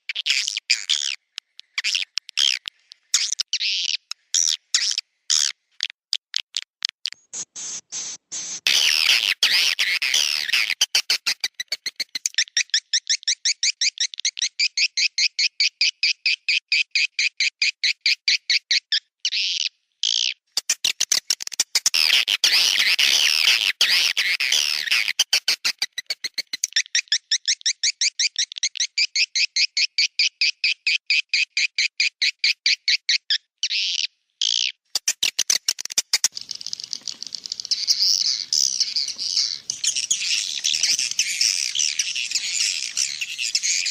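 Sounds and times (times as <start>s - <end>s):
rapid chirping clicks: 0.2s - 13.6s, 20.6s - 27.5s, 34.9s - 43.9s
birds twittering: 36.2s - 43.9s.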